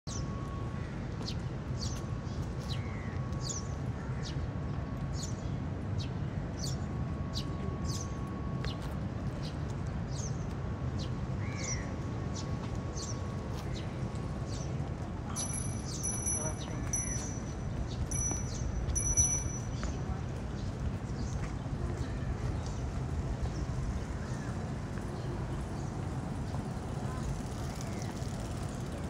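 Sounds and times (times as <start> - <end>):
small birds chirping: 15.4 - 20.0.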